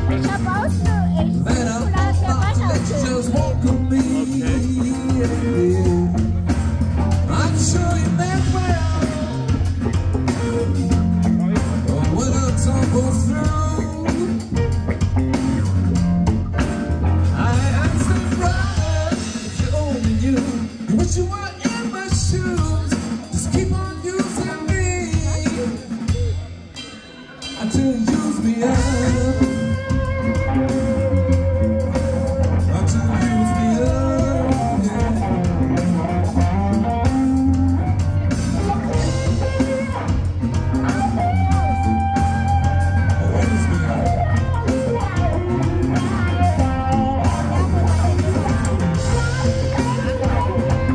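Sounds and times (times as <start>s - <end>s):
person singing: 0.0s - 10.4s, 11.4s - 14.7s, 17.2s - 38.0s, 38.6s - 50.9s
band playing a song: 0.0s - 50.9s.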